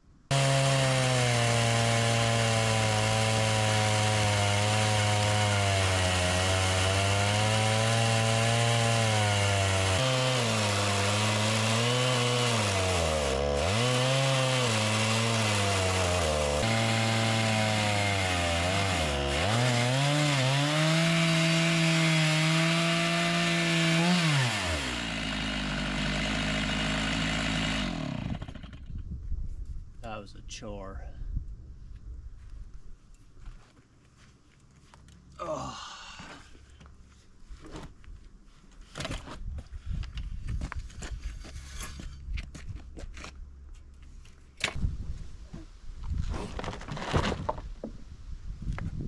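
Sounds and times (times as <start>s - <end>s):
chainsaw ripping a log: 0.3s - 28.9s, 46.2s - 47.7s.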